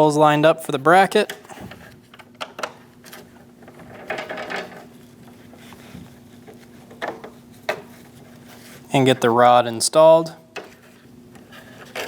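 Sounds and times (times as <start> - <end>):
parts clattering: 1.2 - 5.6.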